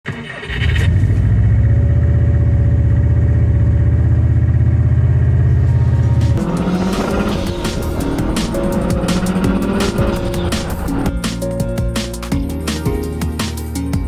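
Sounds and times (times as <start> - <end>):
car engine running at low revs: 0.5 - 11.2.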